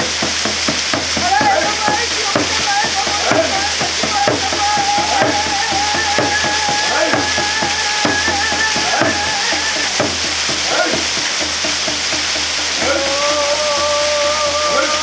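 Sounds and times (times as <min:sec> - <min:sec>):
waterfall pouring: 0:00.0 - 0:15.0.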